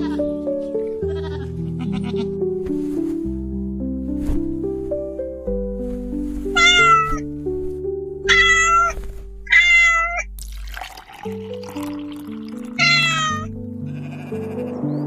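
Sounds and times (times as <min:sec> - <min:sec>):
background music: 0:00.0 - 0:15.0
cat meowing: 0:06.6 - 0:07.2, 0:08.3 - 0:10.3, 0:12.8 - 0:14.8.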